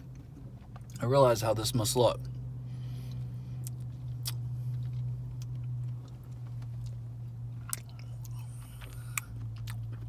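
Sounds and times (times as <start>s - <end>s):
person chewing food: 0.0s - 1.0s, 3.1s - 10.0s
low hum: 0.0s - 10.0s.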